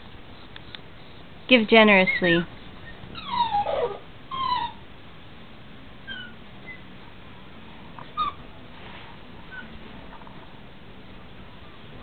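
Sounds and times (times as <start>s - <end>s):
puppy whimpering: 2.1s - 4.8s, 6.0s - 6.9s, 8.0s - 8.5s, 9.5s - 9.8s.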